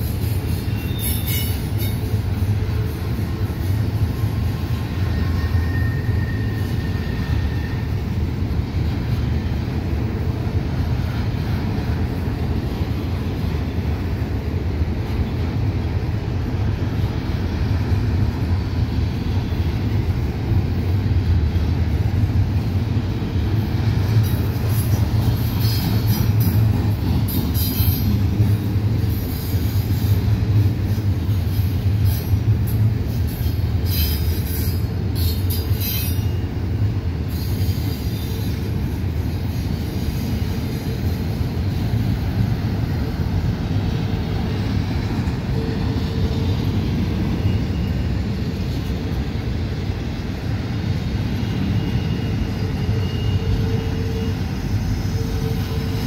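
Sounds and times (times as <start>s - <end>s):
freight train rumbling past: 0.0s - 56.0s
high-pitched wheel squeal: 0.4s - 2.0s, 5.1s - 7.9s.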